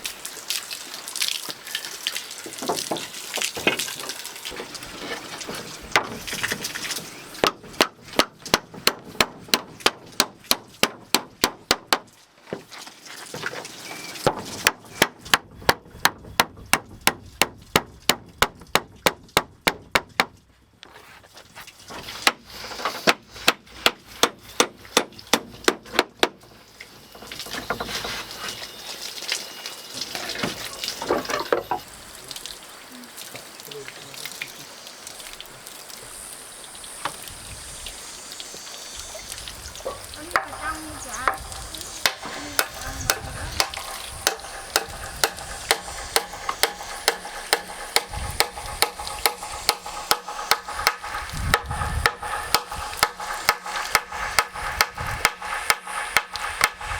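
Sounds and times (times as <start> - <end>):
sharp strikes: 40.4 - 56.9.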